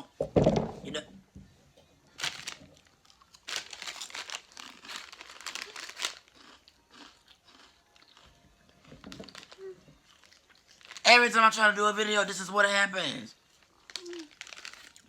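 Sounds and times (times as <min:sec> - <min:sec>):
plastic packaging crinkling: 0:02.2 - 0:11.6, 0:13.4 - 0:15.0.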